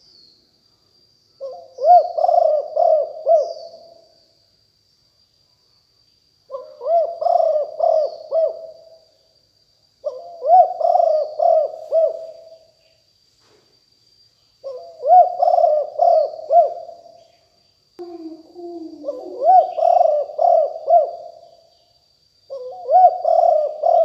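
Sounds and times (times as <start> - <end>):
faint high-pitched whine: 0.0 - 24.0
dove cooing: 1.4 - 4.0, 6.5 - 8.9, 10.0 - 12.6, 14.6 - 17.0, 18.0 - 21.4, 22.5 - 24.0.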